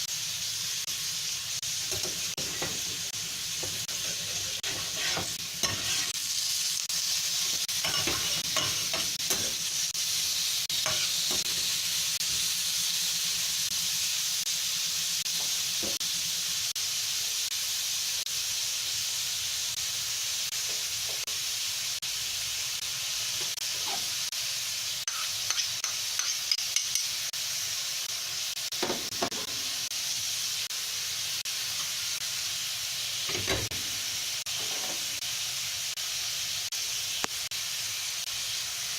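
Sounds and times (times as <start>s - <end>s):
food sizzling in frying pan: 0.0s - 38.9s
utensil scraping against pan: 1.8s - 6.2s, 7.4s - 9.7s, 10.8s - 12.4s, 34.5s - 35.2s.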